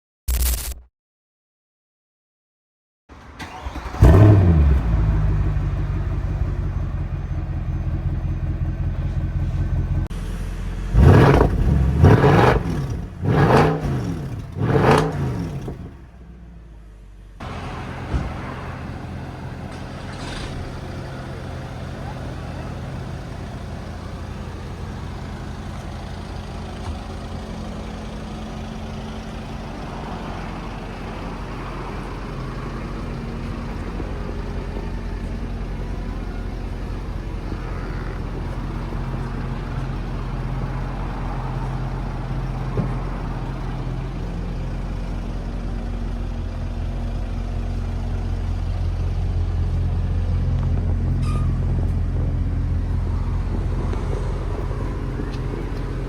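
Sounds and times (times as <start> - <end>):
sharp click: 0.3 - 0.9
car engine idling: 3.4 - 56.0.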